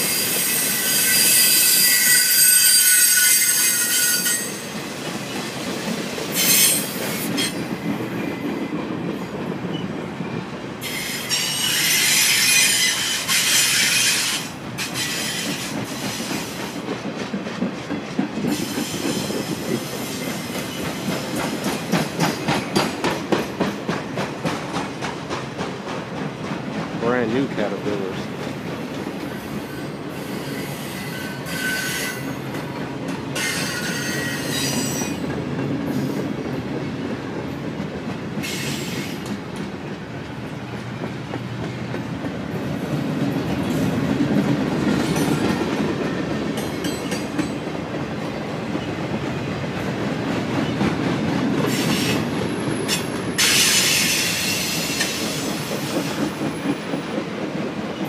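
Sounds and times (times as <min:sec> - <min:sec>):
high wheel squeal: 0:00.0 - 0:04.7, 0:06.4 - 0:07.6, 0:10.8 - 0:16.3, 0:29.7 - 0:32.4, 0:33.4 - 0:35.2
freight wheels rumbling on rails: 0:32.3 - 0:58.0.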